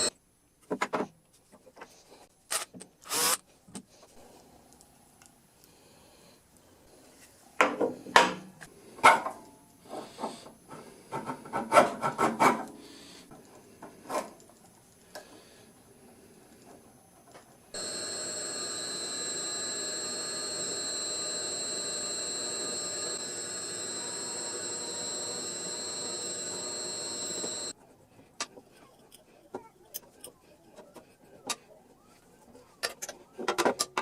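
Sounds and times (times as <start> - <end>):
power tool whining: 17.8 - 27.8.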